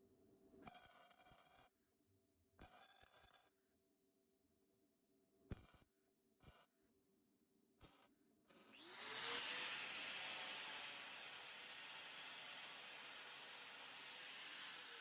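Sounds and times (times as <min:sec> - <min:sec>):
power tool motor whine: 0:08.6 - 0:15.0.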